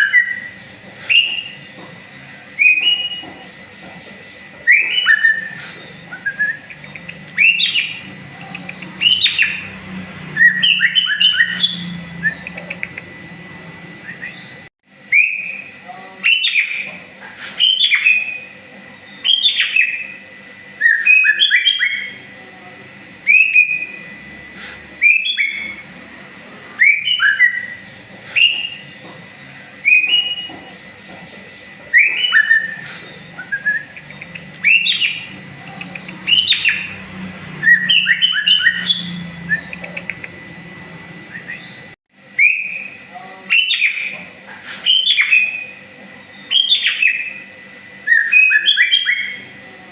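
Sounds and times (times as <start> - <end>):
bird whistling song: 0.0 - 1.7, 2.6 - 3.3, 4.7 - 8.1, 8.7 - 16.9, 17.6 - 20.2, 20.8 - 22.2, 22.9 - 24.0, 25.0 - 25.8, 26.8 - 27.8, 28.4 - 28.9, 29.8 - 30.6, 31.9 - 44.2, 44.8 - 47.4, 48.0 - 49.4.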